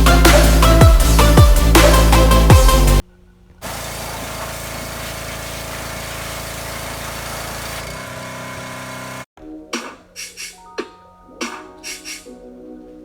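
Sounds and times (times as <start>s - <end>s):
pressure washer spray hiss: 3.6s - 9.2s
pressure washer motor hum: 3.6s - 9.3s.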